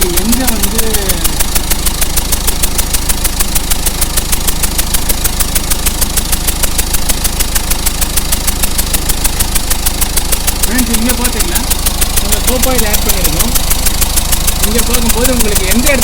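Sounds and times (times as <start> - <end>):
car engine idling: 0.0 - 16.0
rapid even ticking: 0.0 - 16.0.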